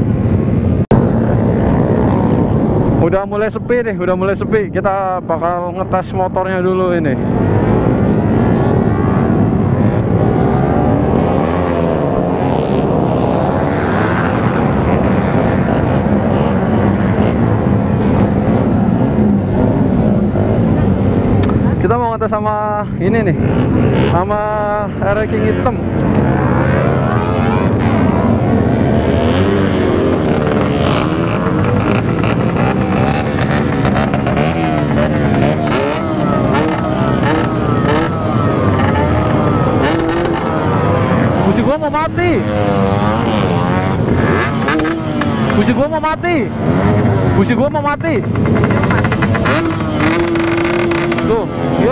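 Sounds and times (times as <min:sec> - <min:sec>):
two-stroke motorcycle engine revving: 0:06.5 - 0:21.7, 0:23.1 - 0:51.9.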